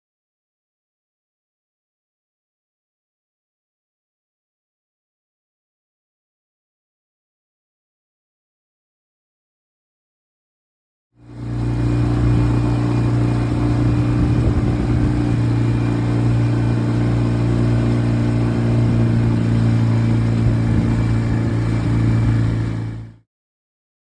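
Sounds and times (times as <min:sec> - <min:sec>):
outboard motor running: 0:11.2 - 0:23.2.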